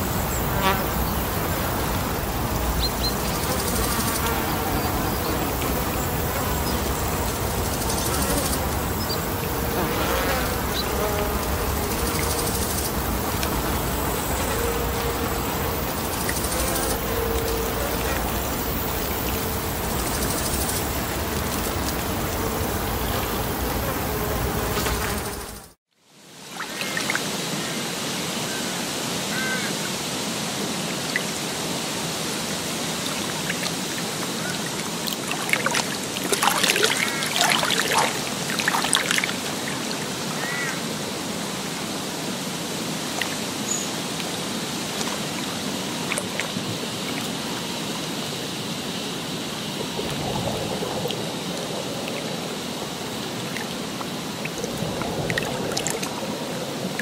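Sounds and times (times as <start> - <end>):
water splashing: 0.0 - 24.5, 32.8 - 40.7, 43.0 - 48.4, 49.2 - 57.0
running water: 0.0 - 25.5, 26.4 - 57.0.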